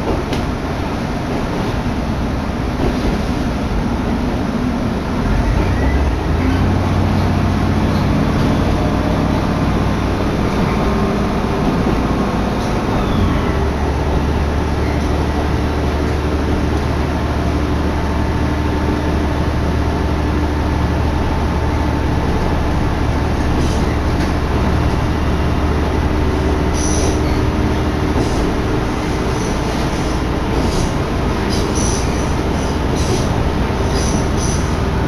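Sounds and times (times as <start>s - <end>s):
railcar engine and wheels rumbling: 0.0s - 35.0s
high wheel squeals: 26.7s - 27.6s, 29.3s - 34.8s.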